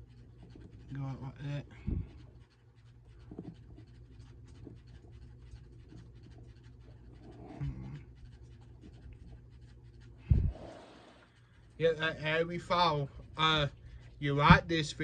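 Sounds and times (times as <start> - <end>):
steady low hum: 0.0 - 15.0
plastic figure scratching and clicking: 2.0 - 10.2.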